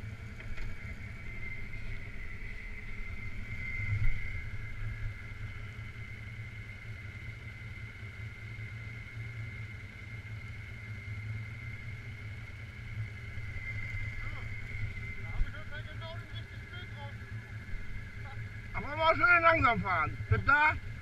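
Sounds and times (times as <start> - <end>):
atv engine running: 0.0 - 21.0
high whine: 0.0 - 21.0.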